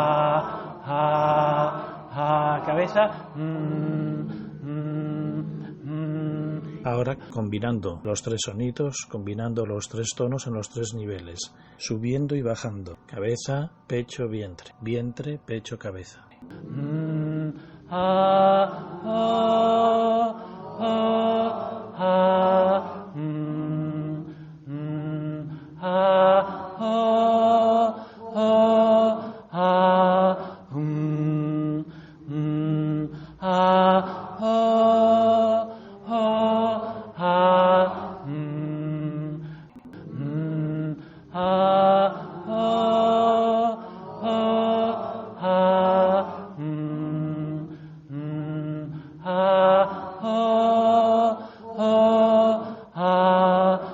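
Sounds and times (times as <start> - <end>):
person chanting vowel tones: 0.0 - 8.6, 14.3 - 53.9
breaths: 11.5 - 11.8, 17.5 - 17.9, 24.2 - 24.7, 25.4 - 25.8, 28.0 - 28.3, 31.9 - 32.3, 33.1 - 33.4, 35.7 - 36.0, 39.4 - 39.9, 41.0 - 41.4, 47.7 - 48.2, 48.9 - 49.3, 51.4 - 51.7.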